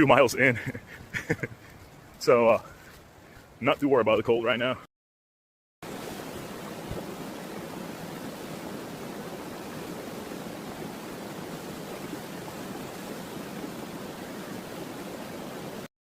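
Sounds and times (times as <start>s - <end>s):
rushing water: 5.8s - 15.9s.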